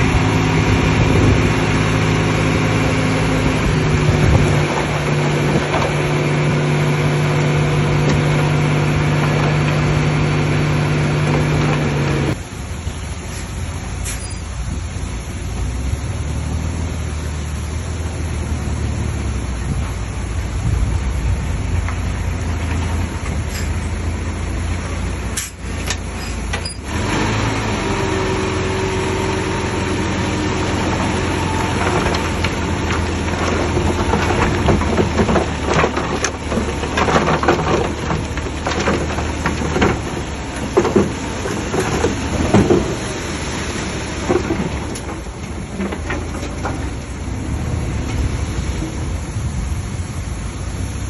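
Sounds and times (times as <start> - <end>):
diesel engine of earthmoving machinery: 0.0 - 51.0
metal clanks and knocks: 22.5 - 24.2, 31.4 - 43.2, 44.2 - 47.3.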